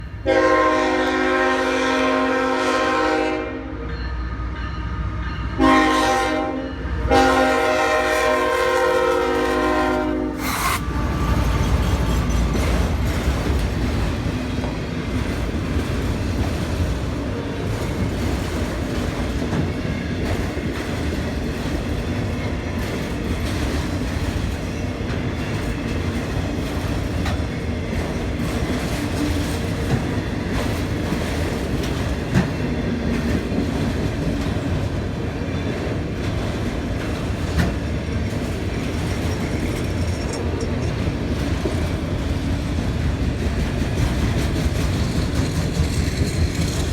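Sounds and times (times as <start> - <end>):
train wheels clattering on rails: 10.4 - 46.9.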